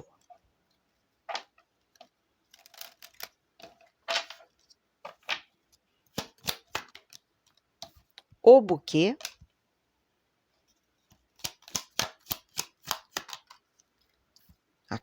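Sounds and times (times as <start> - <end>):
cards being shuffled: 6.1 - 7.2, 11.1 - 13.7.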